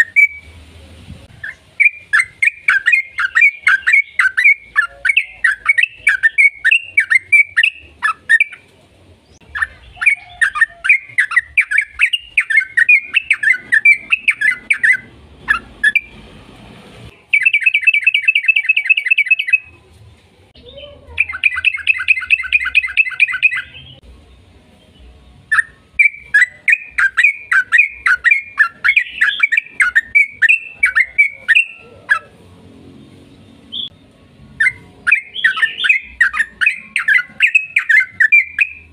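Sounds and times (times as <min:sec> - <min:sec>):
bird chirping: 0:00.0 - 0:00.6, 0:01.3 - 0:16.2, 0:17.1 - 0:19.8, 0:20.6 - 0:32.4, 0:33.2 - 0:38.9
bird trills: 0:01.4 - 0:08.7, 0:09.4 - 0:16.1, 0:17.3 - 0:19.7, 0:21.2 - 0:24.0, 0:25.5 - 0:32.4, 0:34.6 - 0:38.9.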